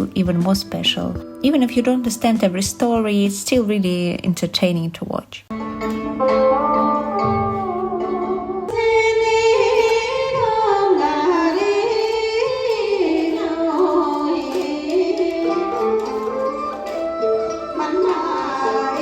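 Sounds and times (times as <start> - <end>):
stringed instruments: 5.5 - 19.0
person singing: 5.8 - 19.0.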